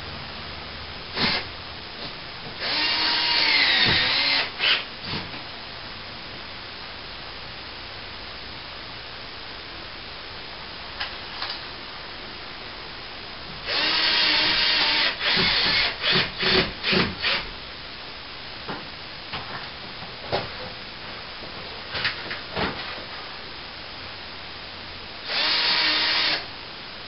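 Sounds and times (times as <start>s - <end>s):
power drill driving a screw: 1.2s - 1.5s, 2.6s - 4.9s, 13.7s - 17.4s, 25.2s - 26.5s.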